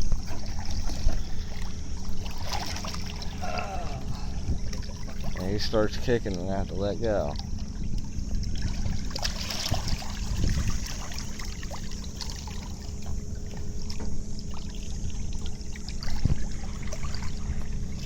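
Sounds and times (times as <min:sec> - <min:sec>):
low steady hum: 0:00.0 - 0:18.0
water splashing and trickling: 0:00.0 - 0:18.0
fish kicking in water: 0:07.1 - 0:18.0.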